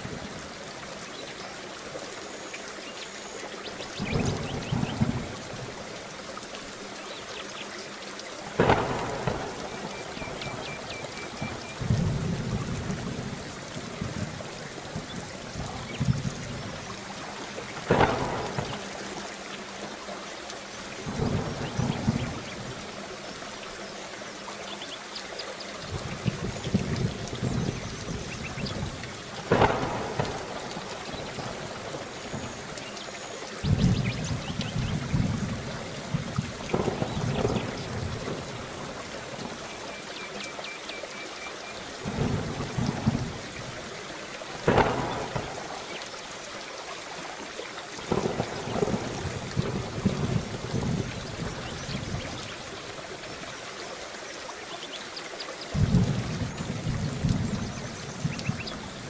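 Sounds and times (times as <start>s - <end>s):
heavy rain: 0.0s - 59.0s
thunder rumbling: 3.9s - 5.9s, 8.6s - 19.2s, 21.0s - 22.8s, 25.9s - 32.8s, 33.6s - 39.6s, 42.0s - 43.8s, 44.5s - 46.0s, 48.1s - 52.6s, 55.7s - 59.0s
sharp thunder cracks: 8.6s - 13.4s, 17.7s - 19.0s, 21.1s - 22.7s, 25.9s - 32.6s, 33.6s - 38.9s, 42.0s - 43.6s, 44.6s - 46.0s, 48.1s - 52.4s, 55.7s - 58.7s.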